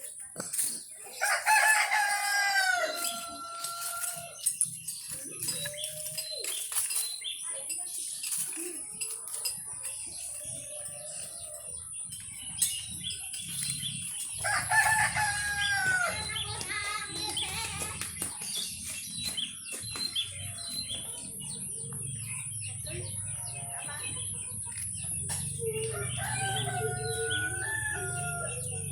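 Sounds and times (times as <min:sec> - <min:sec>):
small birds chirping: 0:00.0 - 0:28.9
rooster crowing: 0:01.2 - 0:04.4, 0:14.4 - 0:16.3, 0:25.8 - 0:28.9.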